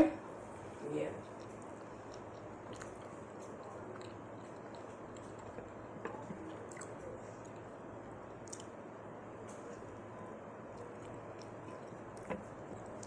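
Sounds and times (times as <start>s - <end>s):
faint background hum: 0.0s - 13.0s
soft chewing: 0.3s - 13.0s
wet mouth clicks: 1.4s - 5.5s, 8.4s - 8.7s.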